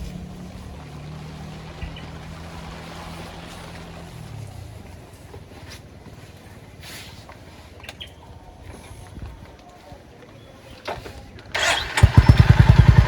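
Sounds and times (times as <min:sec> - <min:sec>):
wind and road rushing: 0:00.0 - 0:05.0
motorcycle engine running: 0:00.0 - 0:05.3, 0:11.6 - 0:13.0.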